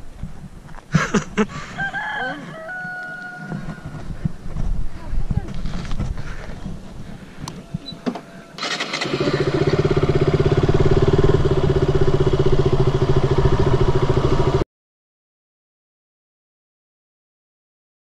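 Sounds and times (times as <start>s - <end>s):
motorcycle engine starting and running: 8.6s - 14.6s.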